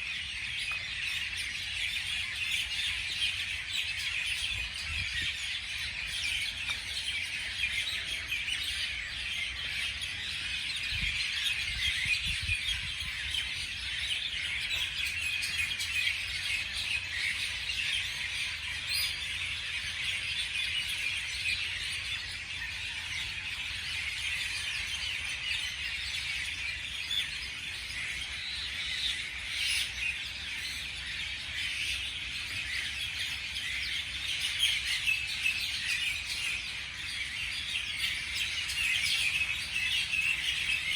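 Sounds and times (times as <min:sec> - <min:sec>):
small birds chirping chorus: 0:00.0 - 0:40.9.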